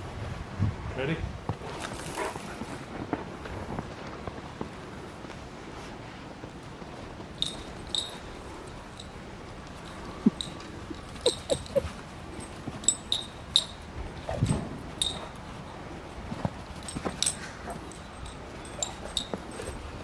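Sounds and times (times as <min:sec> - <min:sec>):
dog whimpering and snuffling: 0:09.8 - 0:13.0.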